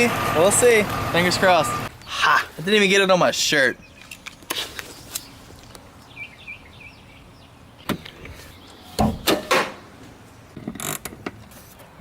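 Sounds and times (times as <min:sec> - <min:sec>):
quick knocks: 0:09.0 - 0:09.8.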